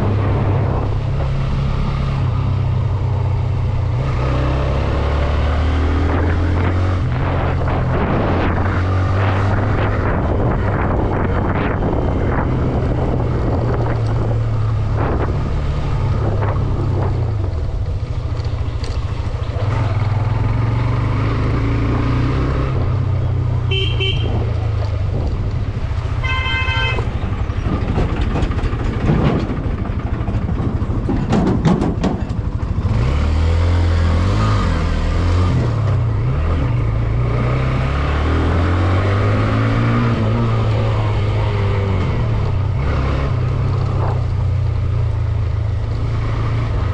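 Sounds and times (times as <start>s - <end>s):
motorcycle engine running: 0.0s - 37.4s
road and wind rumble: 0.0s - 46.9s
traffic passing: 0.0s - 46.9s
vehicle horn honking: 23.7s - 24.5s, 26.2s - 27.2s.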